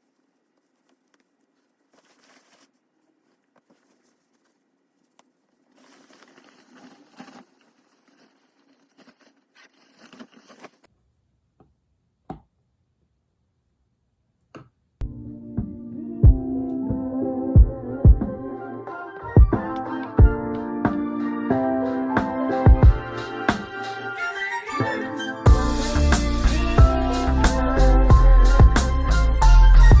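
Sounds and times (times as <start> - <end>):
rustling and crinkling of packaging: 0.0 - 10.9
background music: 15.0 - 30.0.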